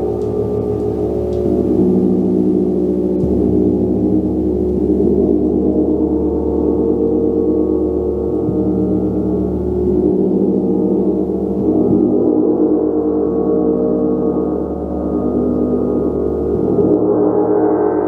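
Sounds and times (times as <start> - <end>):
gong played: 0.0 - 5.7.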